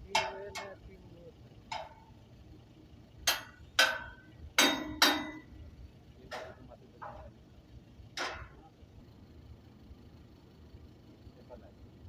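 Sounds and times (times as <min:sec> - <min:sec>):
sharp metallic knocks: 0:00.0 - 0:00.8, 0:01.7 - 0:02.2, 0:03.2 - 0:05.6, 0:06.3 - 0:07.3, 0:08.2 - 0:08.7.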